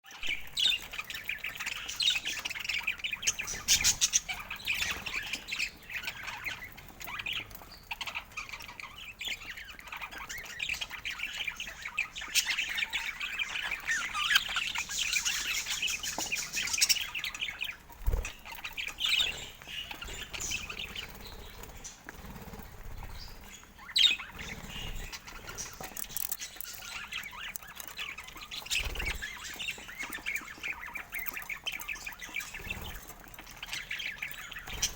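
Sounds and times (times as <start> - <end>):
budgerigars chirping and chattering: 0.0 - 34.9
wing fluttering: 17.8 - 27.7.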